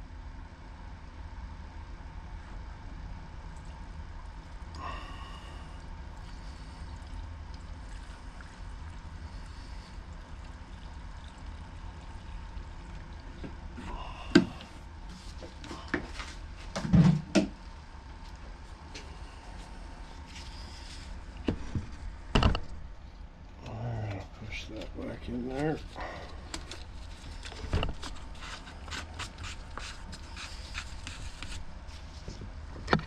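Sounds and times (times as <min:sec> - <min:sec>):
fuel pouring into a tank: 0:06.2 - 0:14.8.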